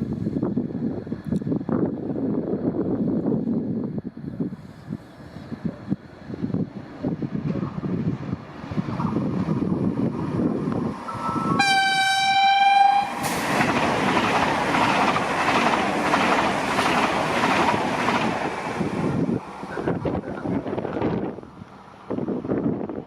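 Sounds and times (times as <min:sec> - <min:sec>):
train passing at speed: 0:00.0 - 0:23.0
train horn blast: 0:11.1 - 0:13.4.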